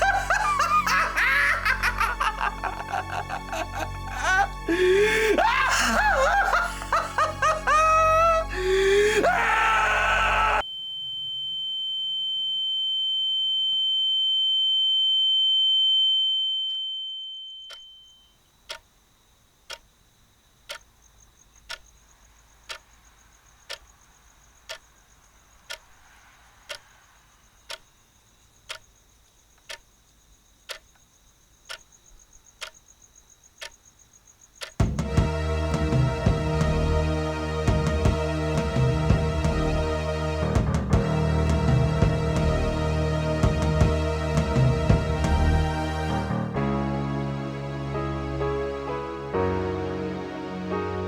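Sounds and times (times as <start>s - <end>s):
music: 0.0s - 10.6s, 34.8s - 51.0s
high-pitched ringing tone: 10.6s - 18.4s
clock ticking: 18.7s - 18.9s, 20.7s - 20.9s, 21.6s - 21.9s, 22.7s - 23.0s, 23.7s - 24.0s, 24.7s - 24.9s, 25.7s - 25.9s, 26.7s - 26.9s, 27.7s - 27.9s, 28.7s - 28.9s, 29.6s - 29.9s, 30.7s - 30.9s, 31.7s - 31.9s, 32.6s - 32.8s, 34.6s - 35.3s.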